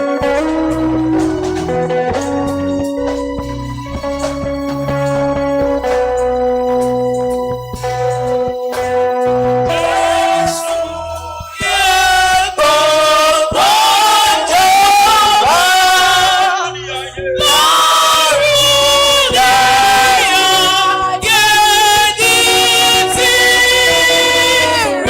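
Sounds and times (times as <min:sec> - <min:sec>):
low instrumental backing: 0:00.0 - 0:25.0
congregation singing: 0:09.6 - 0:25.0.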